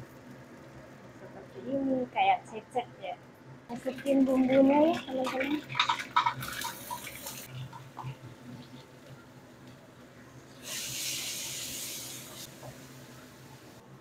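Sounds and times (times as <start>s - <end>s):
spice paste sizzling in oil: 10.6s - 13.8s.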